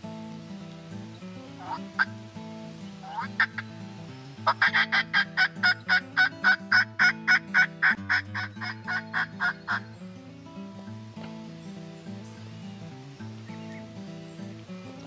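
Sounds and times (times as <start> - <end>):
low background music: 0.0 - 15.0
turkey yelps: 1.6 - 2.1, 3.0 - 3.7, 4.4 - 9.9.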